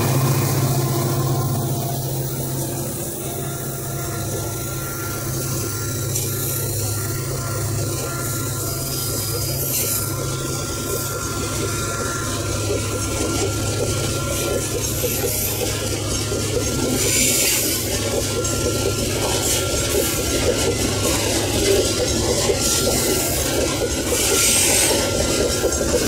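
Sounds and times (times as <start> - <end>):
steel wheels rumbling on rails: 0.0 - 26.0
wagons rattling and clanking: 12.4 - 26.0.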